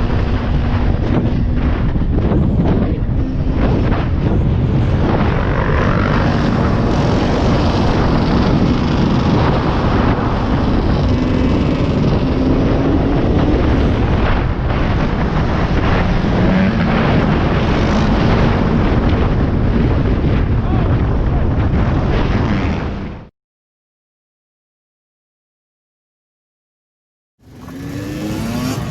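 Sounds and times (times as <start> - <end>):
motorcycle engine accelerating: 0.0 - 20.6, 21.3 - 23.3, 27.4 - 28.9
wind noise on microphone: 0.0 - 23.3, 27.4 - 28.9.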